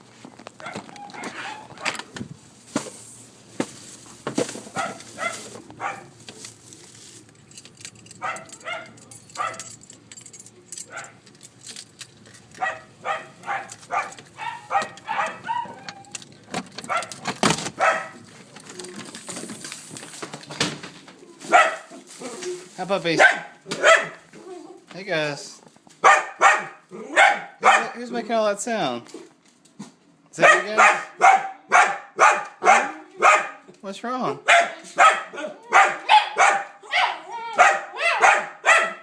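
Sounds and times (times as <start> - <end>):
dogs barking and baying: 0.5 - 2.2, 4.6 - 6.3, 7.9 - 11.5, 12.4 - 18.9, 21.4 - 24.9, 26.0 - 28.1, 30.4 - 33.7, 34.4 - 39.0.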